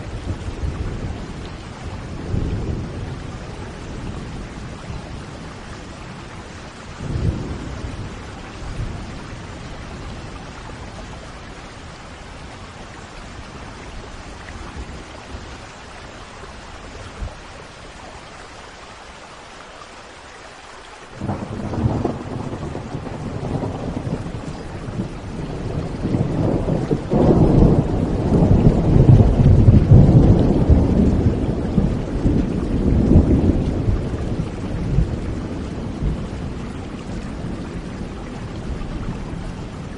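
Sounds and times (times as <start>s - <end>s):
steady rain: 0.0s - 39.9s
thunder clap: 21.2s - 36.6s
thunder rumble: 21.2s - 39.9s.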